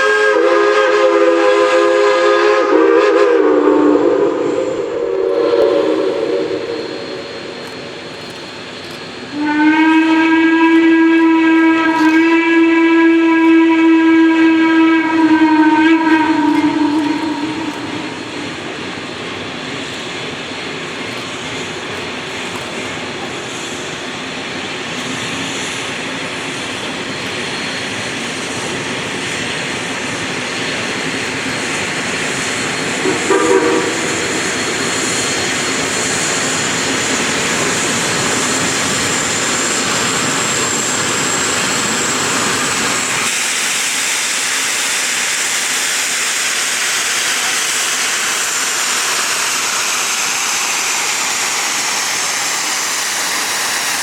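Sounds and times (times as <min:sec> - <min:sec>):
train whistle toot: 0:00.0 - 0:07.6, 0:09.3 - 0:18.8, 0:32.9 - 0:35.2
steam locomotive hissing: 0:00.0 - 0:54.0.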